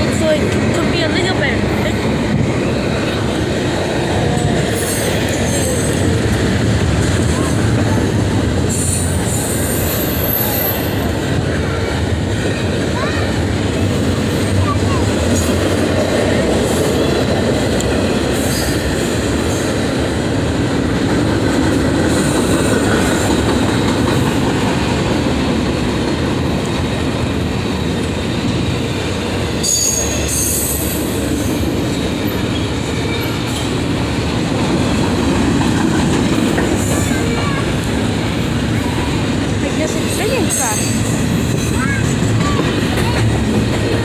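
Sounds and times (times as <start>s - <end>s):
train wheels rumbling on rails: 0.0s - 44.0s
wheel squeal: 29.6s - 31.0s.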